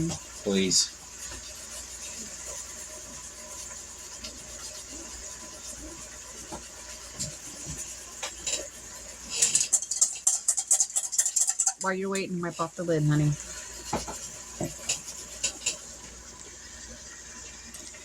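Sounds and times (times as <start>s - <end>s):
sauce sizzling in a skillet: 0.0s - 18.0s
dishes and utensils clattering: 6.5s - 16.0s.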